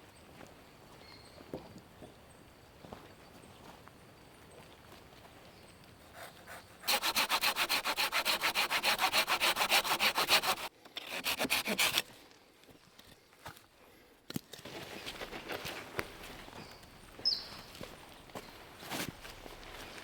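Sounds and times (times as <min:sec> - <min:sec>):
hand saw cutting wood: 0:06.1 - 0:12.2.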